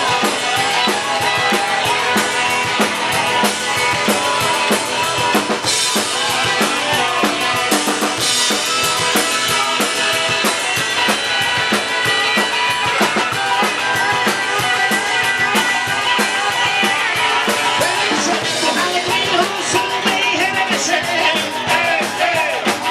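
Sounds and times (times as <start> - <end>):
live rock band playing: 0.0 - 22.9.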